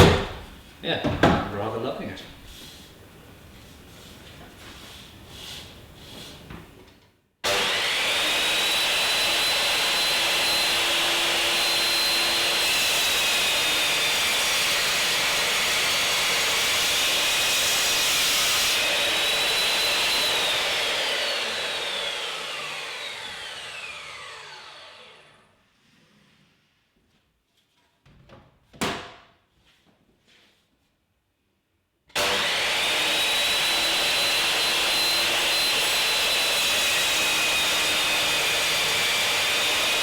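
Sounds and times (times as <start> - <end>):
circular saw cutting wood: 7.4 - 25.6, 32.2 - 40.0.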